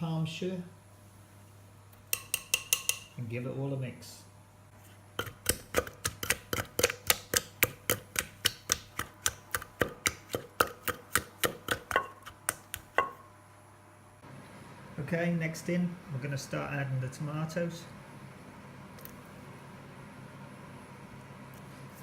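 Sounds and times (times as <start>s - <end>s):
pestle pounding in mortar: 2.2s - 3.1s, 5.2s - 13.2s.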